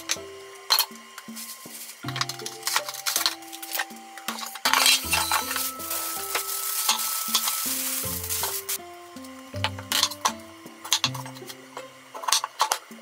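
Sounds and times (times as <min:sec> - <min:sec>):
soft background music: 0:00.0 - 0:13.0
plastic crinkling: 0:01.3 - 0:08.8.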